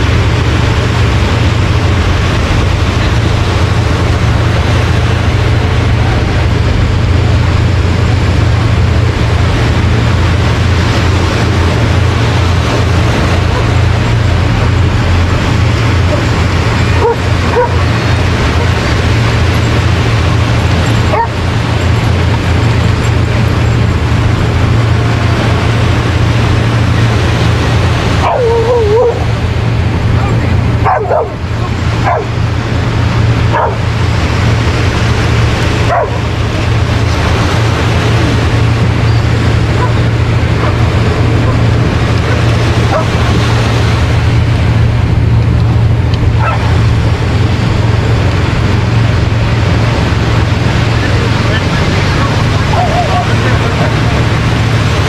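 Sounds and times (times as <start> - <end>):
surf rushing: 0.0 - 55.0
wavering whine: 0.0 - 55.0
wind on microphone: 0.0 - 55.0
dog yipping: 28.2 - 29.2, 35.9 - 36.2, 46.4 - 46.6.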